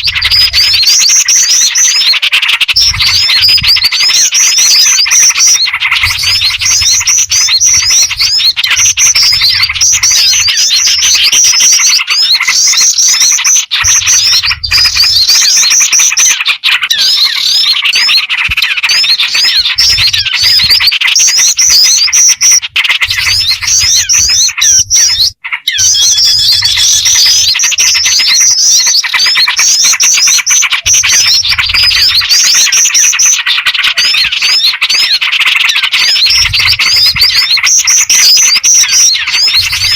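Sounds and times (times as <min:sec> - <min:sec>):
songbirds chirping chorus: 0:00.0 - 0:39.9.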